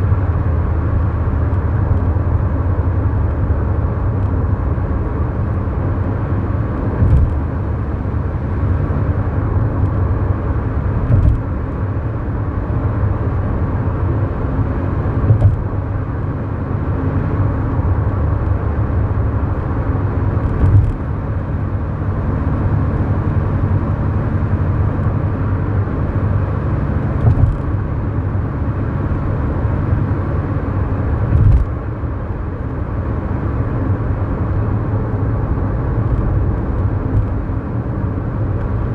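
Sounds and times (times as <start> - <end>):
road and tyre noise: 0.0 - 38.9
car engine running: 1.3 - 38.9
short thump: 7.0 - 7.4, 11.0 - 11.5, 15.2 - 15.7, 20.4 - 21.0, 27.2 - 27.7, 31.3 - 31.8.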